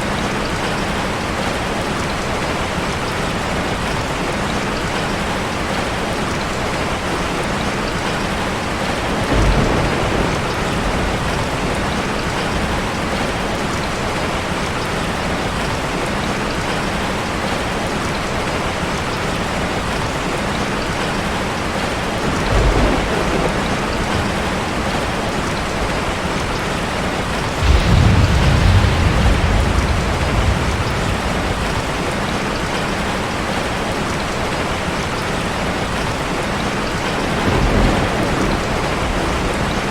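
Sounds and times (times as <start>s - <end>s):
low rumbles: 27.5s - 32.7s.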